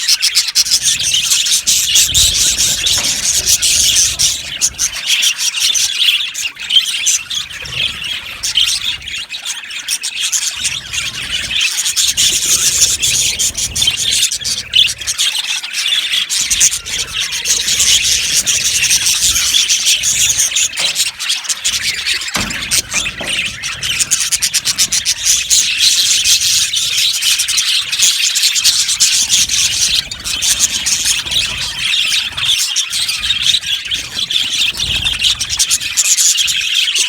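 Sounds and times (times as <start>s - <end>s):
budgerigars chattering: 0.0s - 37.0s.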